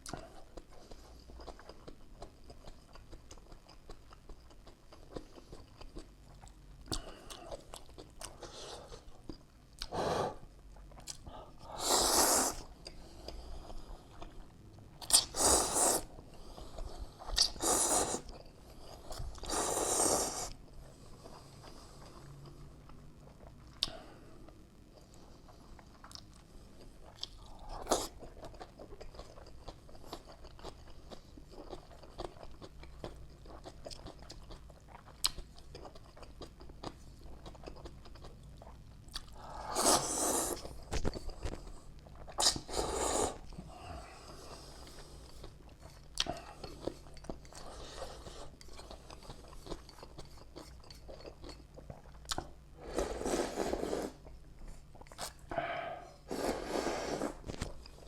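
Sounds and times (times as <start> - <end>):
person chewing and smacking: 0.0 - 9.9, 10.7 - 11.7, 12.5 - 19.6, 25.0 - 42.8, 44.7 - 52.6, 54.2 - 55.5.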